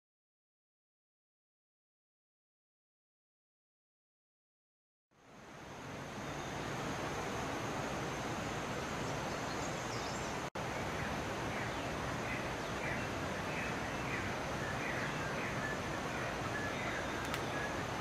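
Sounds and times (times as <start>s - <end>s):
steady rushing noise: 5.2s - 18.0s
bird chirping: 8.9s - 18.0s.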